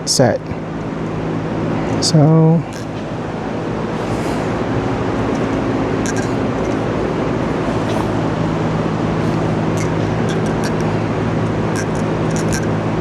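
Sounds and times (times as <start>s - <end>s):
machine hum: 2.6s - 13.0s.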